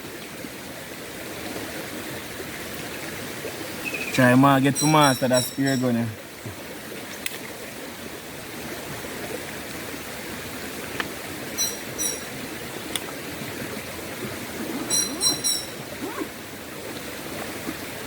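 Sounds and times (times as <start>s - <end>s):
river water rushing: 0.0s - 18.0s
short high-pitched notes: 14.9s - 15.8s.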